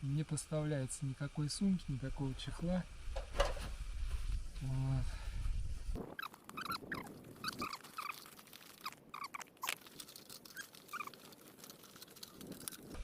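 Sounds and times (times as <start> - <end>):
short high squeaks: 6.0 - 9.8, 10.4 - 11.3.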